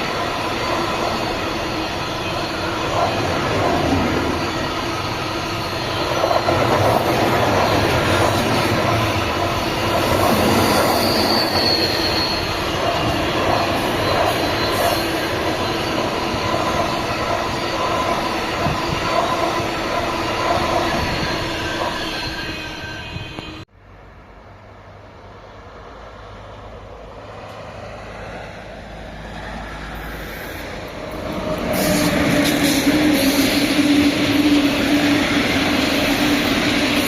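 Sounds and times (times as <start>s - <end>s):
train rolling rumble: 0.0s - 23.7s, 25.6s - 37.0s
wheels squealing on rails: 0.0s - 23.7s, 27.1s - 37.0s.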